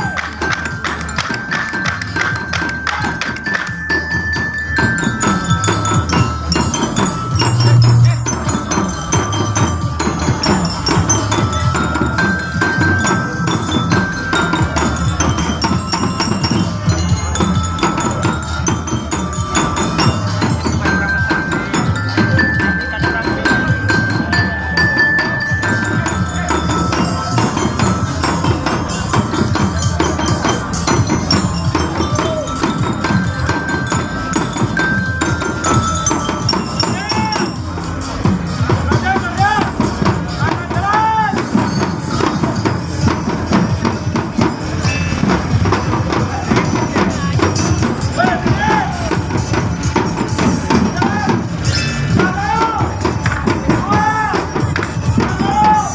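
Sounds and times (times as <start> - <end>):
wooden clogs clacking on ground: 0.0 - 8.8
chiming melody music: 0.0 - 55.9.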